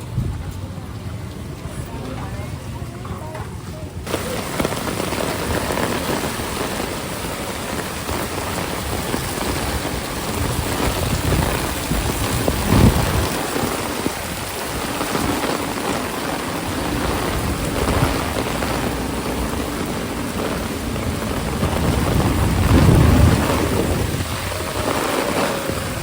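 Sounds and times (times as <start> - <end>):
heavy rain pouring: 0.0 - 26.0
low rumble: 16.7 - 26.0.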